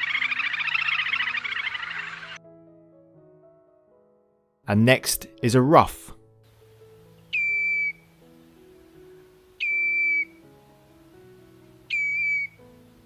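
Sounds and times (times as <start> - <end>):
bird whistled calls: 0.0 - 2.4, 7.3 - 8.1, 9.6 - 10.4, 11.9 - 12.6.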